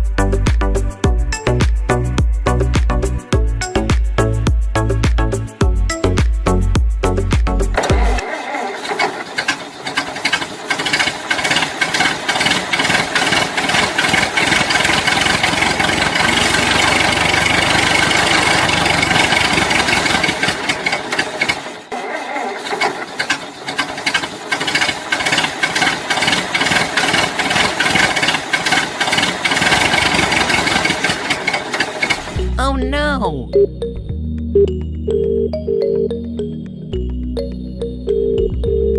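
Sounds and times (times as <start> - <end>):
mechanical rattling and clattering: 8.9 - 21.8, 22.7 - 32.4.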